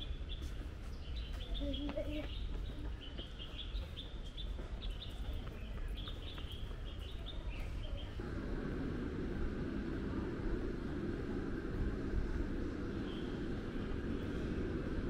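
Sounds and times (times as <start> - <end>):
small birds chirping: 0.0 - 8.2, 11.1 - 15.0
low outdoor rumble: 0.0 - 15.0.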